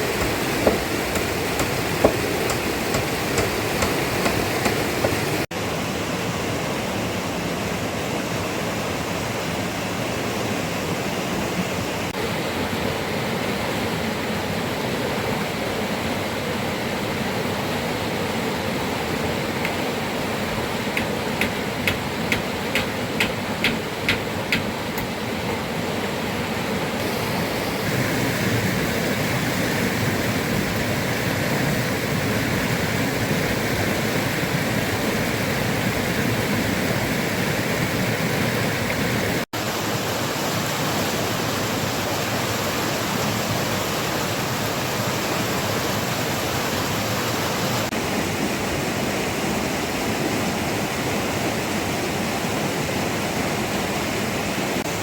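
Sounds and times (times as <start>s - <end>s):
rushing water: 0.0s - 55.0s
sharp knocks: 0.1s - 5.4s, 21.0s - 25.1s.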